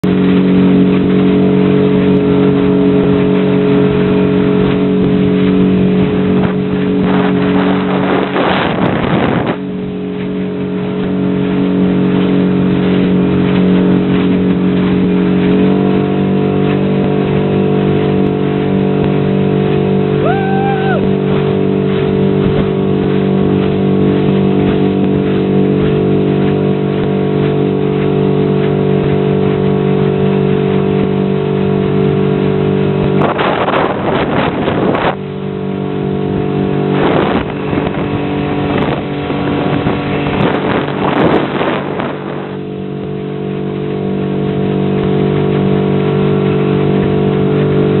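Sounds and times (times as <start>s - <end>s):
motorboat engine running: 0.0s - 48.0s.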